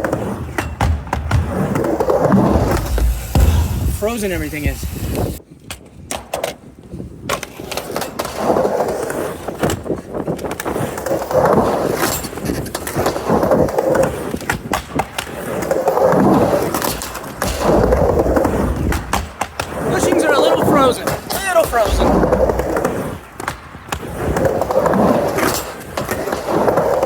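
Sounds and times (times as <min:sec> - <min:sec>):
skateboard clacking: 0:00.0 - 0:04.1, 0:10.4 - 0:27.0
skateboard wheels rumbling: 0:00.0 - 0:27.0.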